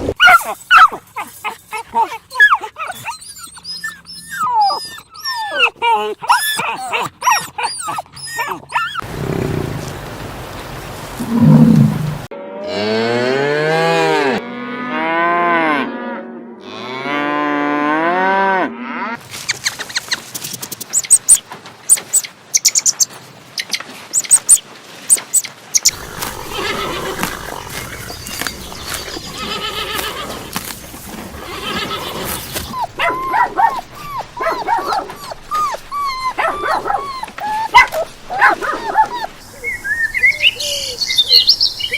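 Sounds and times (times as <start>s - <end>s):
animal calls rising and falling: 11.1s - 12.3s, 24.2s - 30.7s
rough animal call: 11.1s - 12.8s, 25.8s - 41.0s.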